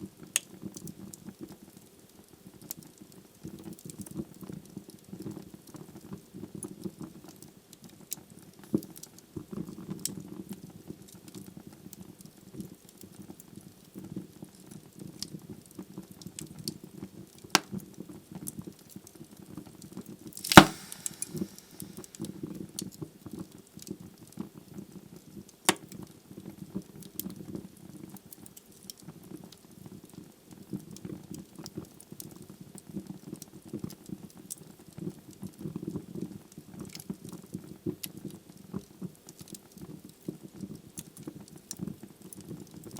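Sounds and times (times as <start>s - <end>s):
wood fire crackling: 20.3s - 22.9s
brief hiss: 20.4s - 22.1s
loud fire pops: 20.4s - 22.2s.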